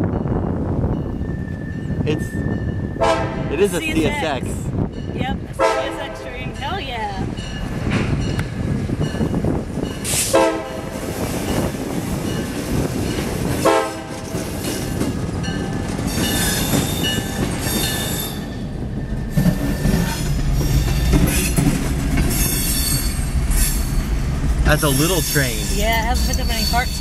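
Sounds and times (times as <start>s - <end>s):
train horn blasts: 3.0s - 4.0s, 5.5s - 6.6s, 10.2s - 11.2s, 13.6s - 14.4s.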